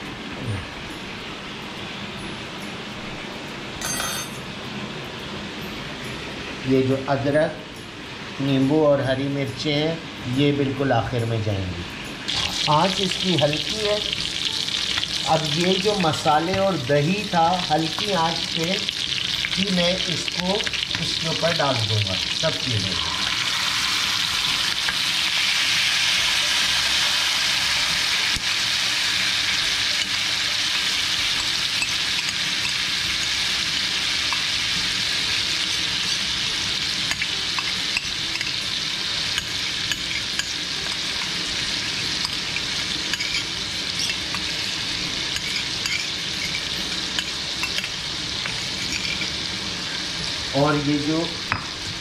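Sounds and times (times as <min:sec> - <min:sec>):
chicken sizzling in oil: 0:12.2 - 0:52.0.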